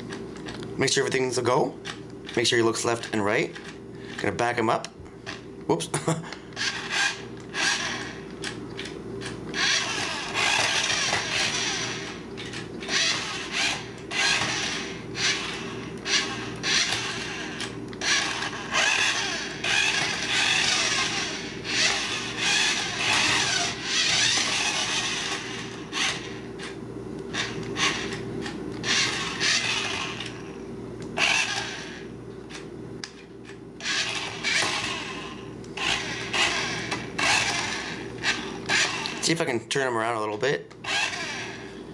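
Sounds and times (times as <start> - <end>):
toy car electric motor whirring: 6.6 - 28.2, 28.8 - 30.5, 31.2 - 32.0, 33.8 - 39.3, 40.8 - 41.6.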